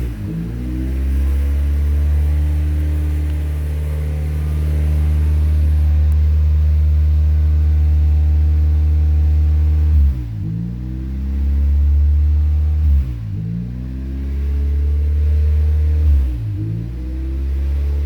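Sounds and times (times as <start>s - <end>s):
car engine running above idle: 0.0s - 12.8s.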